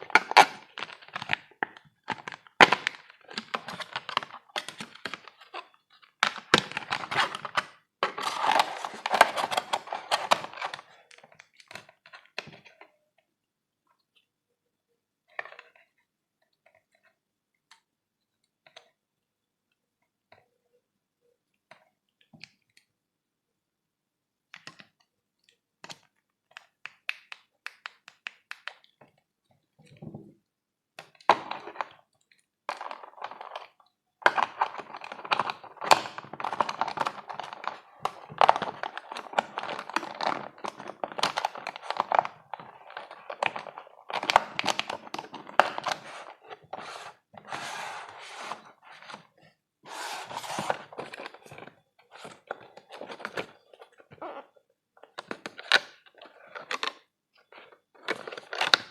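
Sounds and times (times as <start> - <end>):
packaging crinkling and rustling: 0.0 - 11.8, 32.7 - 49.3, 49.9 - 58.9
packaging taps and clicks: 25.8 - 29.2.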